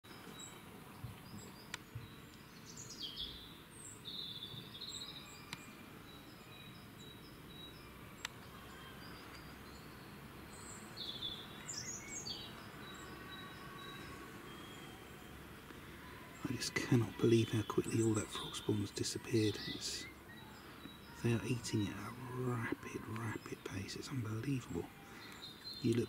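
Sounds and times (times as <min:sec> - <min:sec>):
birds chirping: 0:00.1 - 0:26.0
steady background hiss: 0:00.1 - 0:26.0
faint sharp clicks: 0:01.7 - 0:02.4, 0:08.2 - 0:08.5.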